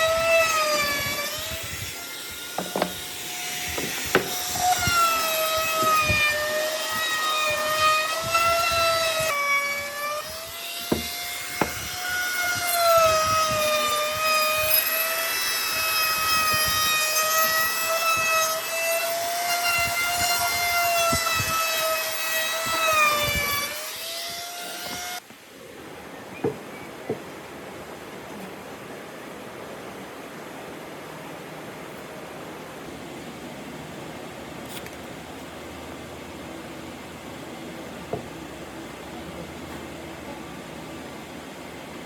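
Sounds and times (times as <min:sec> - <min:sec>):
power tool whining on wood: 0:00.0 - 0:25.2.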